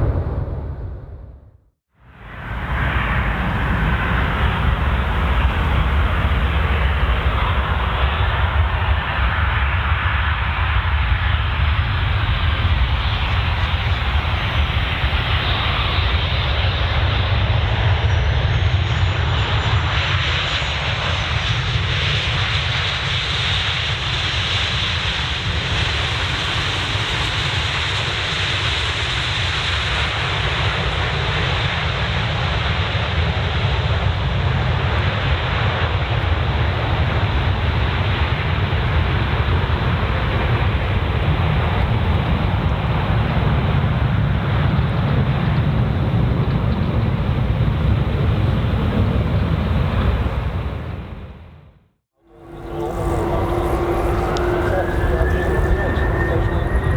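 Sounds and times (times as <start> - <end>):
jet engine noise: 0.0 - 1.4, 2.0 - 51.6, 52.2 - 56.9
faint high whine: 32.8 - 43.8, 52.2 - 56.9.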